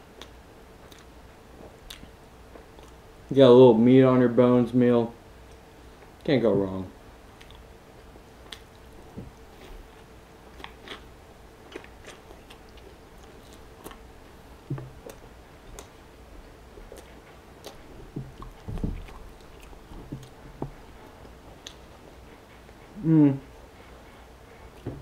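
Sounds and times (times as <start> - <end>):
person chewing: 0.2 - 2.1, 2.7 - 3.0, 7.3 - 7.6, 8.4 - 22.0.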